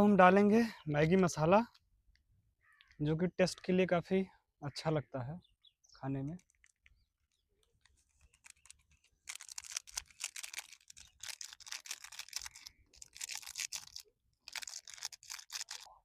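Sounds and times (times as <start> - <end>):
plastic packet crinkling and tearing: 6.3 - 16.0.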